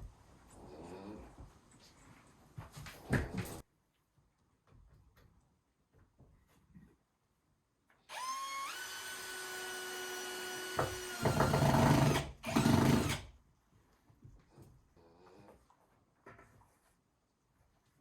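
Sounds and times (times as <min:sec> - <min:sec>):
power drill whining: 0:08.1 - 0:13.3.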